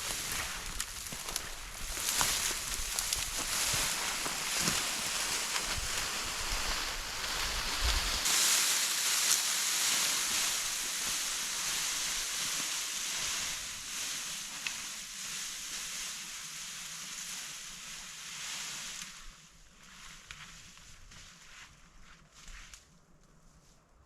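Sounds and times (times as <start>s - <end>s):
outdoor rushing hiss: 3.8s - 19.4s
wind rumble on microphone: 5.6s - 8.3s.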